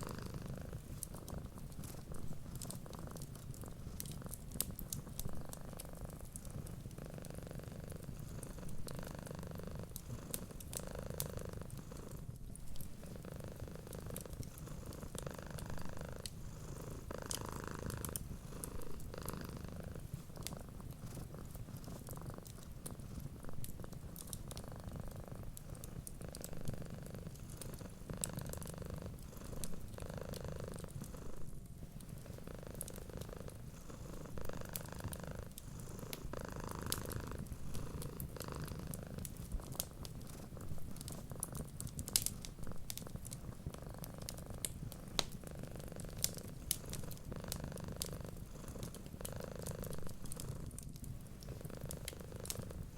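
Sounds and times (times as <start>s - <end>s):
cat purring: 0.0s - 52.9s
wood fire crackling: 0.0s - 52.9s.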